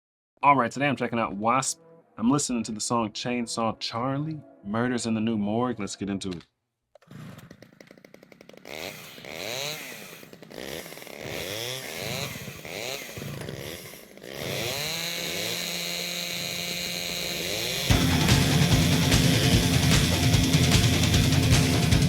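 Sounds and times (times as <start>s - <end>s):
chainsaw engine revving: 7.1s - 22.0s.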